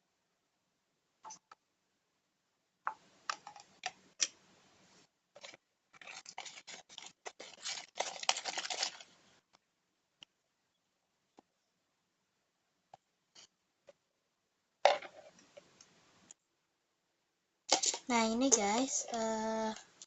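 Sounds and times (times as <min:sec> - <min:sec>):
slime squelching and crackling: 0:05.4 - 0:09.2.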